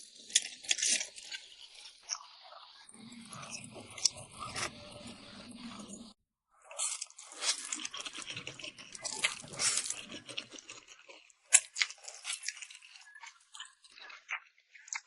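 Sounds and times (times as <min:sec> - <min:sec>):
person chewing: 0:03.0 - 0:05.7, 0:06.7 - 0:15.0.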